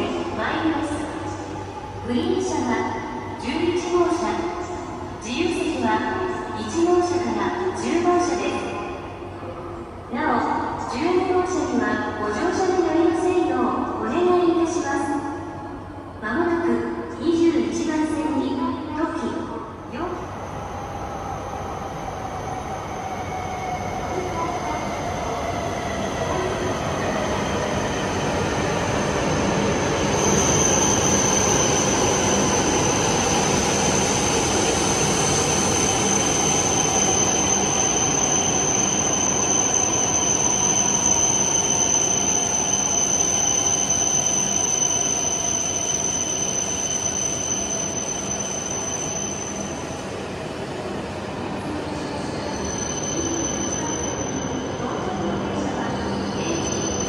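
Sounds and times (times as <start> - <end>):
high brake squeal: 36.0 - 49.9, 52.0 - 54.8, 55.9 - 57.0.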